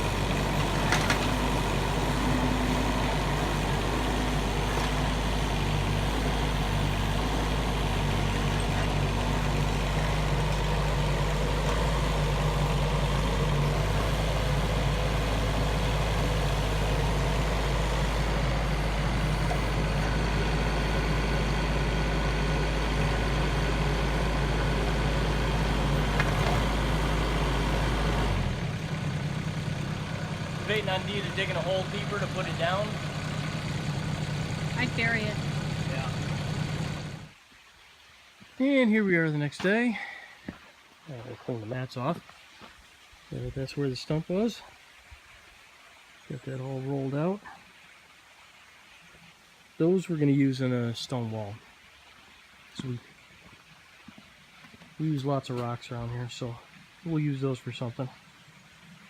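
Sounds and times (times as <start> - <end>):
excavator diesel engine running: 0.0 - 37.4.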